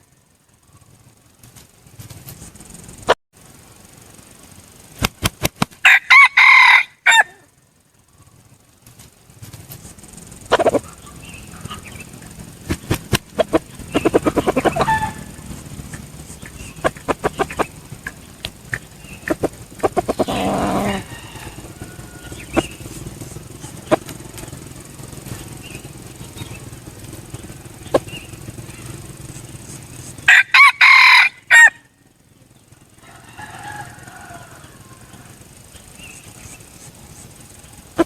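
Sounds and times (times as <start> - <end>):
rooster clucking and clicking: 5.0 - 7.5, 8.8 - 31.9, 33.0 - 38.0
rooster crowing: 5.8 - 7.6, 13.4 - 25.1, 30.2 - 32.0, 32.9 - 36.2
faint bird call: 10.5 - 24.6.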